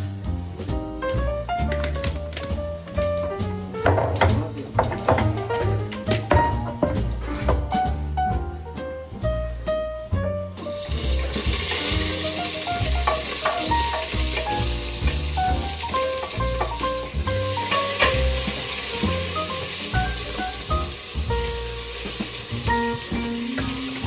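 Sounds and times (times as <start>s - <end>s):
background music: 0.0s - 24.0s
food sizzling in a pan: 10.6s - 24.0s.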